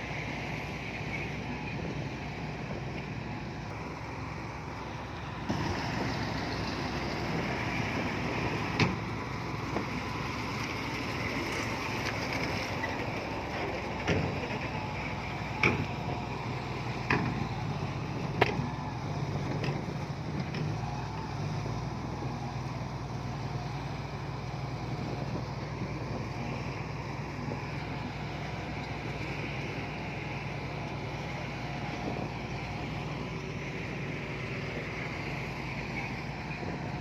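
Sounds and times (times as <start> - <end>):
diesel engine running under load: 0.0 - 37.0.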